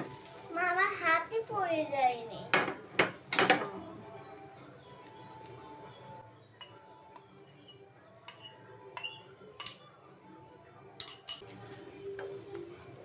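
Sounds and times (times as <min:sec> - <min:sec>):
cutlery clinking against dishes: 0:02.5 - 0:03.8, 0:06.6 - 0:09.9, 0:11.0 - 0:12.6.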